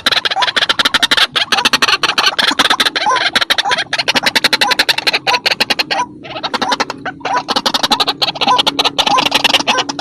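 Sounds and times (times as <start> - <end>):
harsh clicking bird calls: 0.0 - 10.0.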